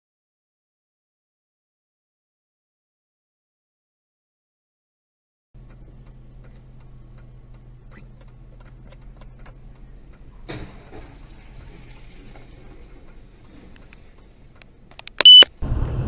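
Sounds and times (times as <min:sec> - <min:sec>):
faint ticks: 0:05.6 - 0:10.5
car engine hum: 0:05.6 - 0:16.0
heavy truck rushing past: 0:15.6 - 0:16.0.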